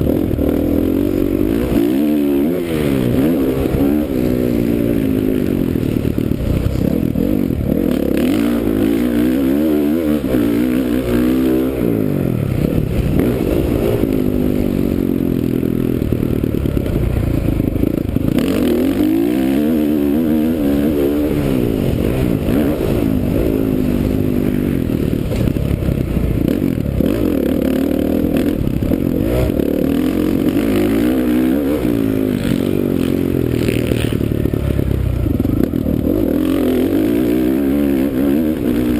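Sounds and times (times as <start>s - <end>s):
bike rattling over rough track: 0.0s - 38.9s
motocross bike engine revving: 0.0s - 38.9s.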